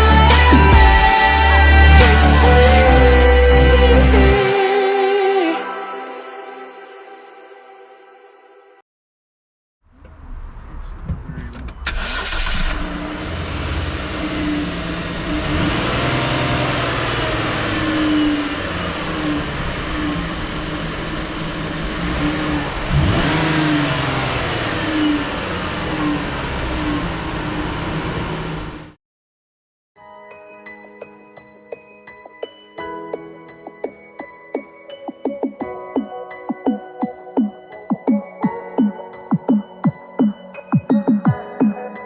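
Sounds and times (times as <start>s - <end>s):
car engine starting and revving: 9.9s - 29.0s.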